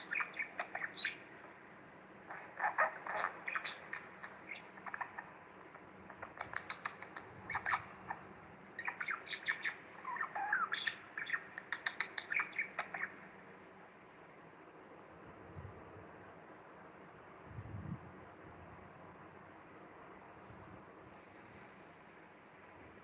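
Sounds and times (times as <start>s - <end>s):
budgerigar chirping and squawking: 0.0s - 1.3s, 2.3s - 5.4s, 6.1s - 13.2s.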